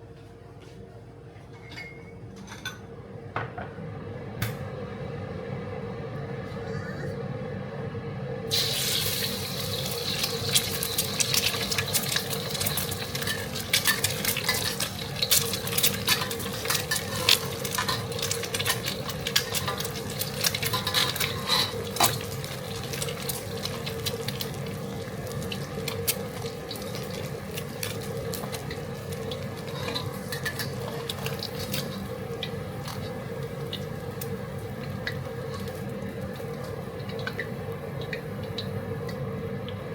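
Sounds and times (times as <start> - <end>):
meat sizzling in a pan: 8.5 - 39.8
spatula scraping a pan: 13.2 - 18.9, 19.5 - 22.2, 29.6 - 31.2.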